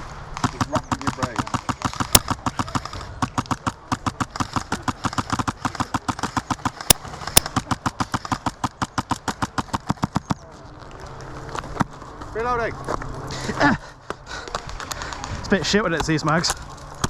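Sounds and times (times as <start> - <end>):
sharp cracks: 0.3 - 12.6
airsoft rifle rapid firing: 0.4 - 10.1.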